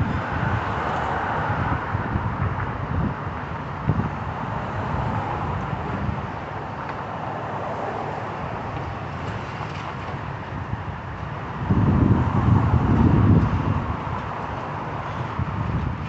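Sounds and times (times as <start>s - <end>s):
steady outdoor rumble: 0.0s - 16.0s.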